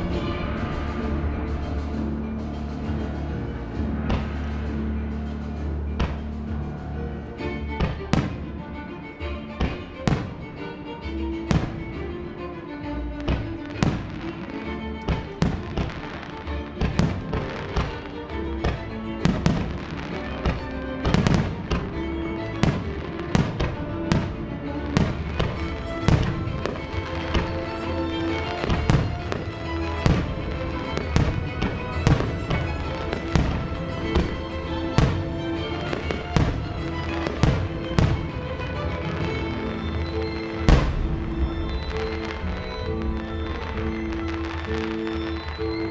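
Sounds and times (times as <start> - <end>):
fireworks bursting: 0.0 - 45.9
music over loudspeakers: 0.0 - 45.9.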